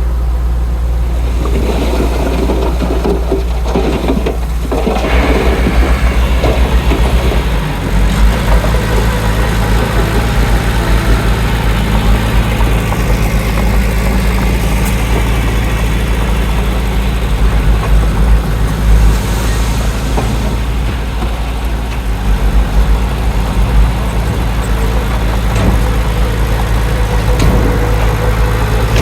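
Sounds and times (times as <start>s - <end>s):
diesel engine rumbling: 0.0s - 29.0s.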